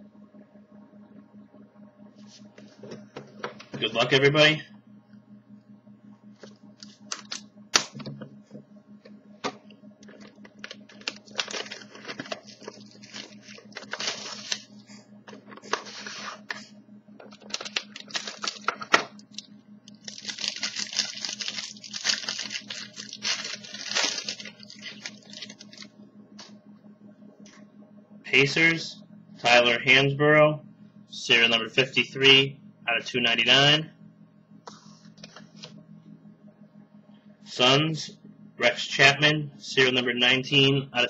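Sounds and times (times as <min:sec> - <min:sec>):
low electrical hum: 0:00.0 - 0:41.0
packaging torn and crinkled: 0:10.6 - 0:14.7, 0:17.3 - 0:25.9.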